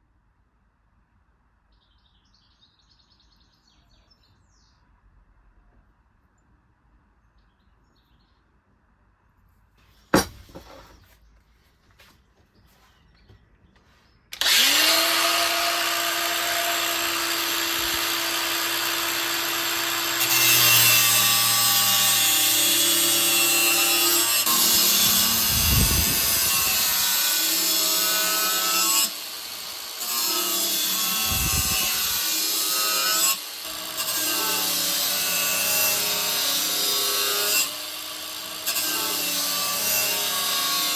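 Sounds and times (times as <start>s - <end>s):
sharp knock: 10.2s - 10.6s
angle grinder grinding steel: 14.4s - 40.9s.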